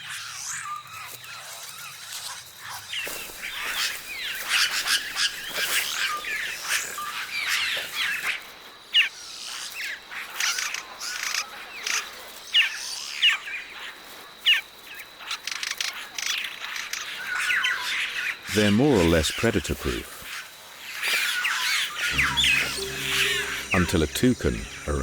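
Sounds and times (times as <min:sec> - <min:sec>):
birds chirping and whistling: 0:22.1 - 0:24.8.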